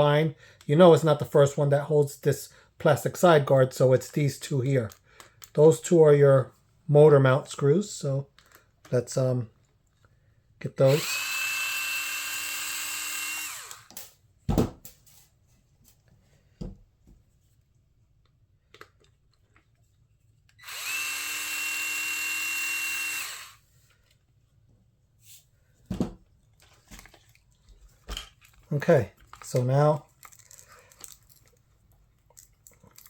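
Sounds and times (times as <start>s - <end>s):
cordless driver spinning screws: 10.9s - 13.9s, 20.6s - 23.6s
small parts clicking and knocking: 28.0s - 33.0s.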